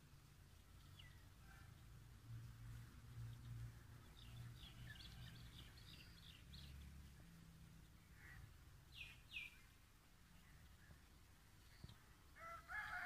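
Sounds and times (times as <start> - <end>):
faint bird chirps: 7.9 - 13.0.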